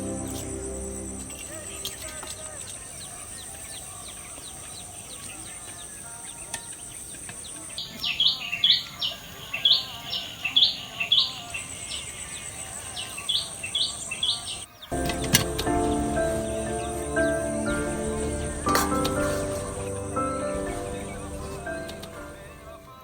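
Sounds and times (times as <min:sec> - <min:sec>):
high insect drone: 0:00.0 - 0:04.0, 0:14.9 - 0:23.0.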